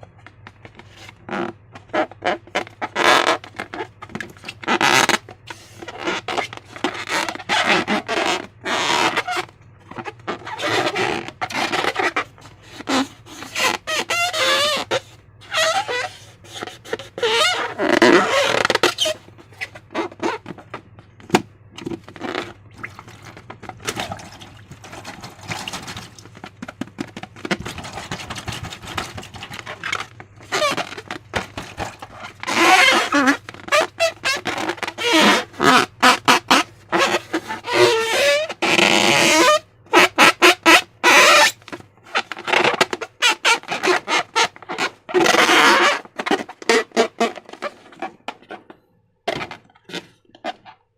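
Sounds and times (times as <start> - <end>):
slime squelching: 22.0 - 35.8.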